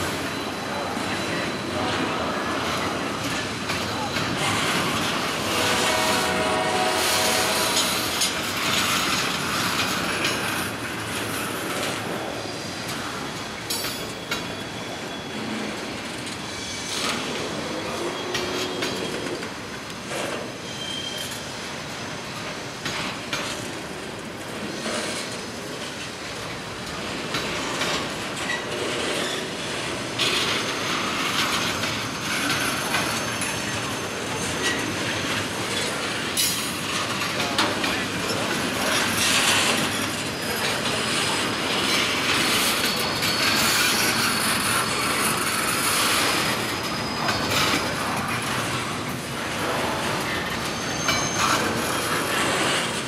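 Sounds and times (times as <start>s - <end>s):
high wheel squeal: 0.0s - 8.3s, 12.3s - 19.5s, 20.1s - 21.6s, 28.4s - 36.7s, 38.2s - 48.8s, 50.0s - 53.0s
train wheels clacking on track: 0.0s - 53.0s.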